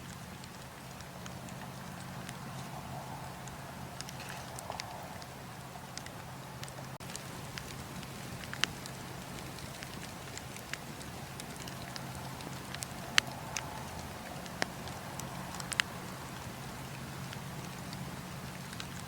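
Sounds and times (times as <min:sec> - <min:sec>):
campfire crackling: 0:00.0 - 0:19.0
steady hiss: 0:00.0 - 0:19.0.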